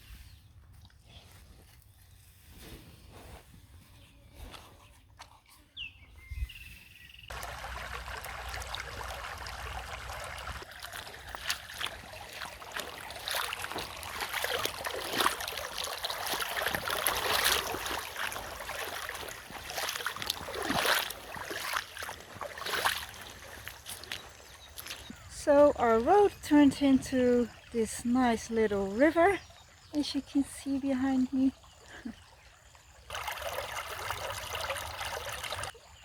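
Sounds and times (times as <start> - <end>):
rain falling: 7.3 - 10.6
water running across a road: 7.3 - 29.3, 32.7 - 35.8.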